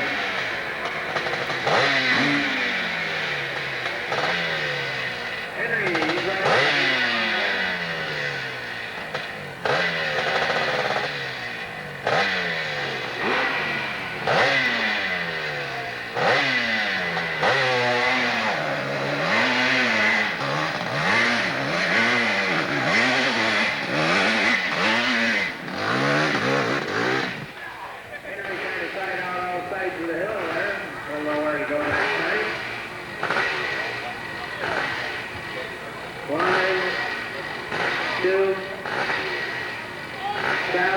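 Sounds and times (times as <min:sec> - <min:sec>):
motorcycle engine revving hard: 0:00.0 - 0:40.9.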